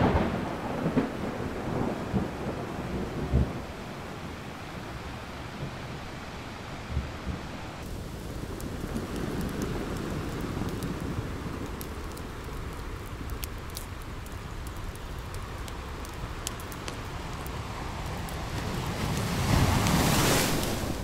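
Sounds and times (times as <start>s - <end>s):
steady rain: 0.0s - 21.0s
sharp crackles: 7.8s - 21.0s.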